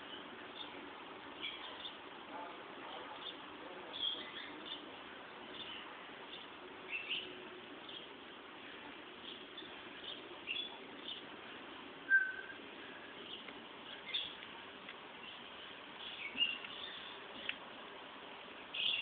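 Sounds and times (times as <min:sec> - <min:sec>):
faint steady hum: 0:00.0 - 0:19.0
small birds chirping: 0:00.0 - 0:19.0
whistled bird note: 0:12.1 - 0:12.6.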